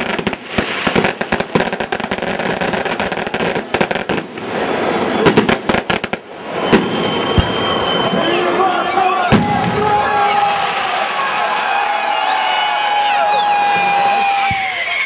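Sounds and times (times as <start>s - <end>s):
loud firework bangs: 0.0s - 8.2s, 9.3s - 11.2s
fireworks crackling: 0.0s - 8.6s, 9.3s - 12.9s.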